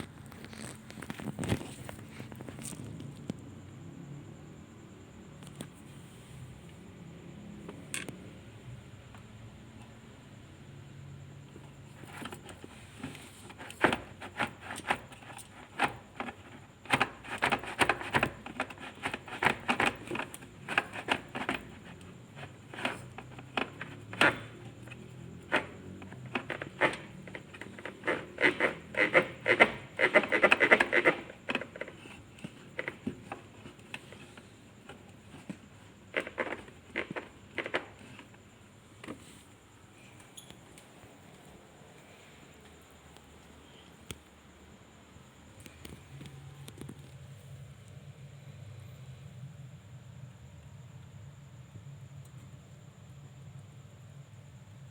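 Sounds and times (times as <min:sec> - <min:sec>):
hard objects clicking and scraping: 0:11.5 - 0:39.3.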